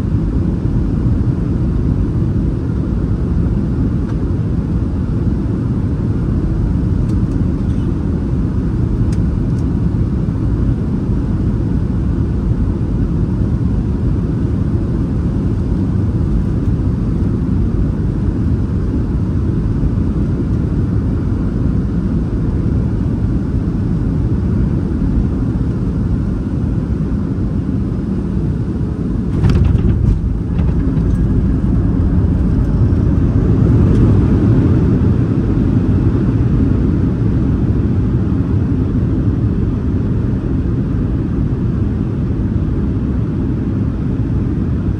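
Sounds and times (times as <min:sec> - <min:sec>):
aircraft cabin engine rumble: 0:00.0 - 0:44.9
sudden bump: 0:29.1 - 0:33.6.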